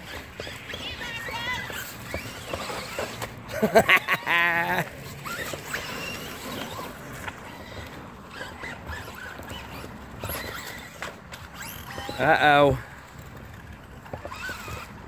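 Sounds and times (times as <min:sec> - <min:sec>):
tyres churning through mud: 0:00.0 - 0:15.0.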